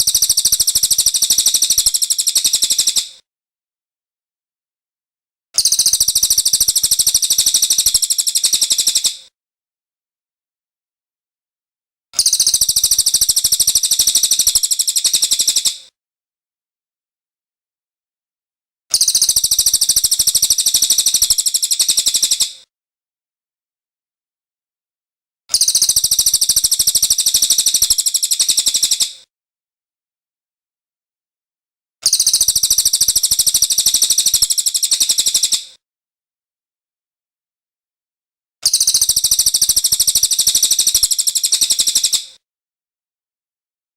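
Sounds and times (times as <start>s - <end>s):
songbird trilling: 38.7s - 42.2s.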